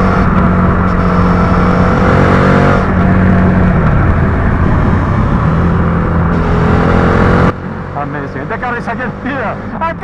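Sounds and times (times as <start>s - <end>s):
wind rush: 0.0s - 7.5s
motorcycle engine pulling hard: 0.0s - 9.7s.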